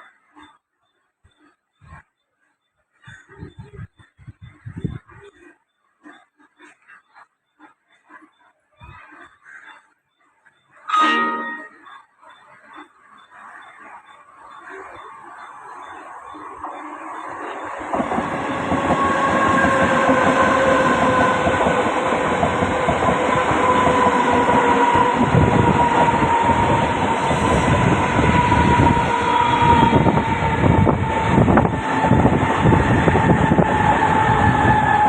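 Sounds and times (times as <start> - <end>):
train rumble with whine: 11.1 - 35.0.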